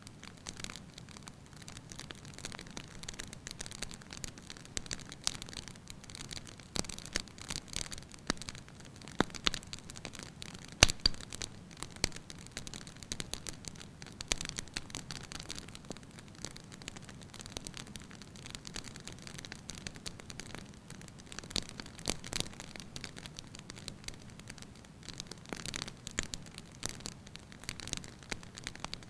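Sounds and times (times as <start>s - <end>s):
fire crackling in a fireplace: 0.0s - 29.0s
sharp wood pops: 10.8s - 11.3s.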